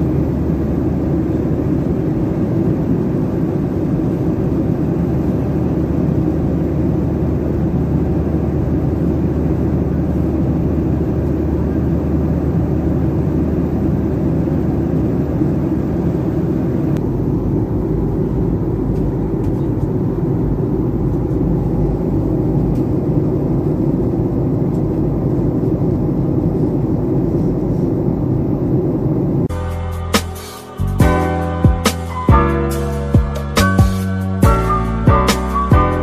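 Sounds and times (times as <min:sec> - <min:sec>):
airplane cabin engine rumble: 0:00.0 - 0:36.0.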